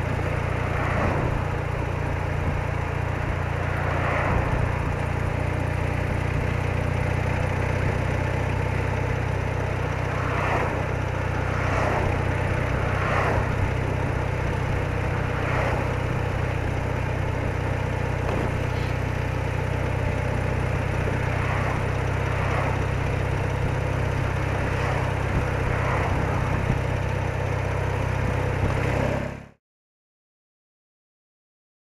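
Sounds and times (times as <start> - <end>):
motorcycle engine running: 0.0 - 29.6
wind on microphone: 24.6 - 27.0.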